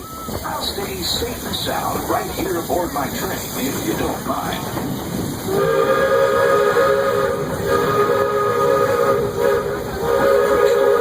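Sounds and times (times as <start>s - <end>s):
steam locomotive chime whistle: 5.5s - 11.0s.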